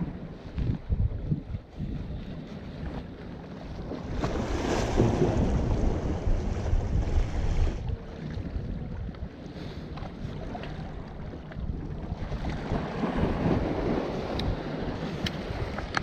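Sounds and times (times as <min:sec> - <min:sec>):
wind rumble on microphone: 0:00.0 - 0:16.0
ocean wave surging and washing back: 0:03.3 - 0:08.5, 0:09.4 - 0:16.0.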